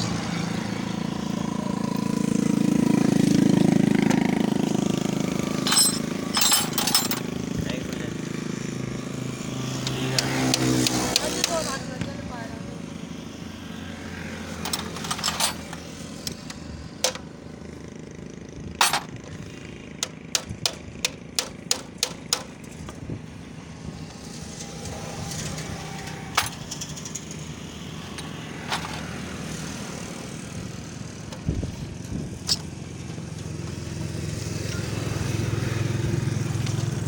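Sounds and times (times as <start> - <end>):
low vehicle rumble: 0.0 - 37.0
metal tools clinking on metal: 5.0 - 8.0, 14.4 - 17.3, 18.6 - 19.4, 24.3 - 29.7, 32.4 - 33.5.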